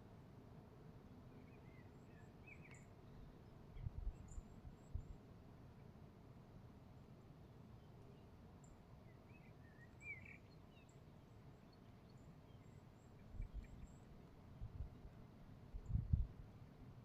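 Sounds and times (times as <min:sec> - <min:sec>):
faint low rumble: 0:15.7 - 0:16.4.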